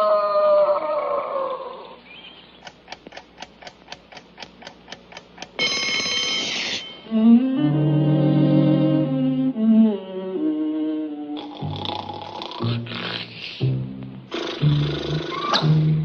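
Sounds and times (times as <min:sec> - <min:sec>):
alarm clock ticking quickly: 0:02.6 - 0:06.6
alarm clock bell ringing: 0:05.6 - 0:07.1
music: 0:07.0 - 0:16.0.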